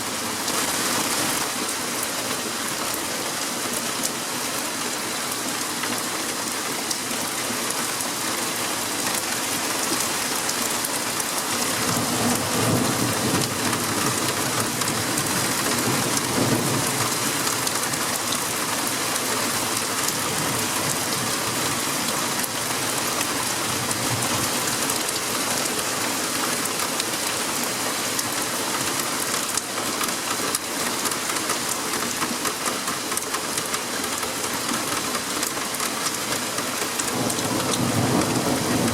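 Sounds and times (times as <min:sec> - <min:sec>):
heavy rain falling: 0:00.0 - 0:38.9
thunder rumbling: 0:37.1 - 0:38.9.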